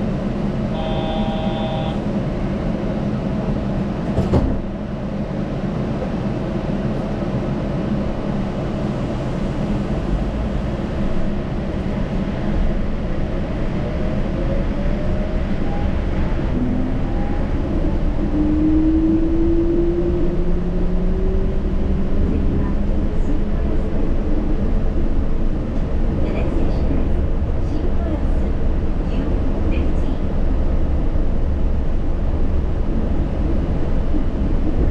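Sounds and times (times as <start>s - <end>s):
train rumble with tyre noise: 0.0s - 34.9s
brief electronic tone: 0.8s - 2.0s.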